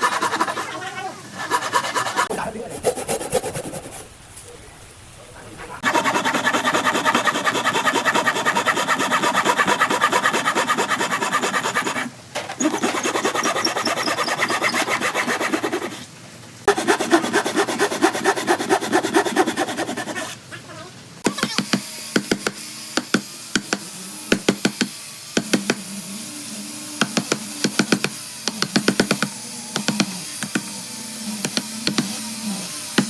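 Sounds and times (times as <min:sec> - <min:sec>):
tool scraping wood: 0:00.0 - 0:00.7, 0:01.3 - 0:04.1, 0:05.8 - 0:16.0, 0:16.7 - 0:20.4, 0:27.0 - 0:30.8, 0:31.4 - 0:33.0.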